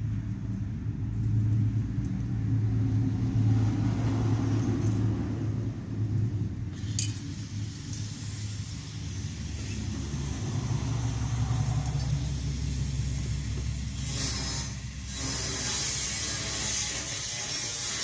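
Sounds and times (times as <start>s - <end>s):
low rumble with hum: 0.0s - 16.9s
metallic clinks of brake parts: 0.5s - 2.2s, 4.6s - 8.5s, 9.5s - 14.0s.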